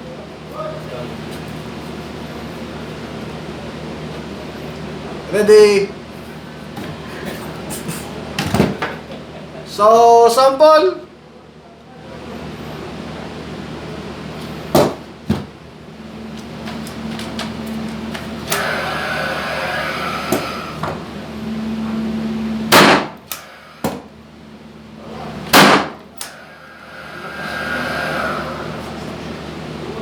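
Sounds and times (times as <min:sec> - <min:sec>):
steady hum: 0:12.5 - 0:30.0
nail gun firing loud bang: 0:22.7 - 0:24.0, 0:25.5 - 0:26.0.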